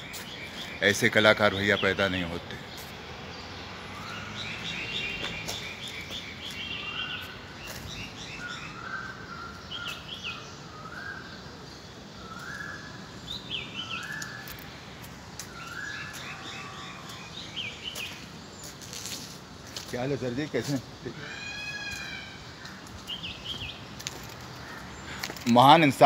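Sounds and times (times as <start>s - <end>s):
steady background noise: 0.0s - 26.0s
high bird chirps: 12.2s - 14.7s.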